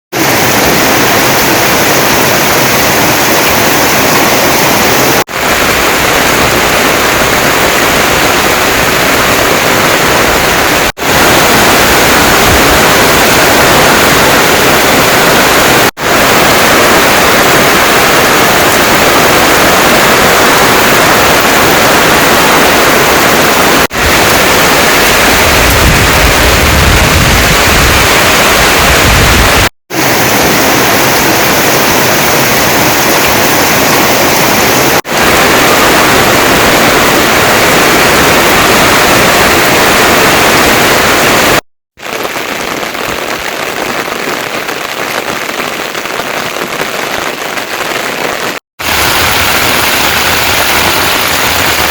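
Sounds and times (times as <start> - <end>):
heavy rain pouring: 0.1 - 51.9.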